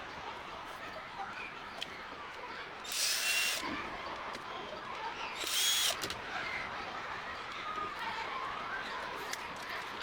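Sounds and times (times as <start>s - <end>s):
handheld power tool whining: 2.9s - 3.6s, 5.4s - 6.2s.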